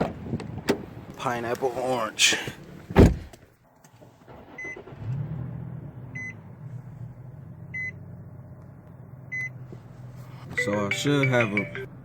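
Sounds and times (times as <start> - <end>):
low car hum: 0.0 - 12.0
dashboard warning chime beeps: 9.3 - 9.5, 10.6 - 11.9.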